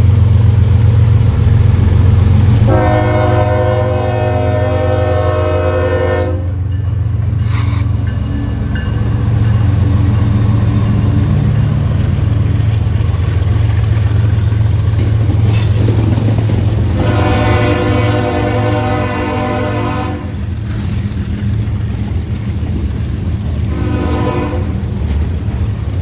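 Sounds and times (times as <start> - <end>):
low rumble of passing train: 0.0 - 26.0
locomotive air horn: 2.6 - 6.6, 17.0 - 20.4, 23.7 - 24.8.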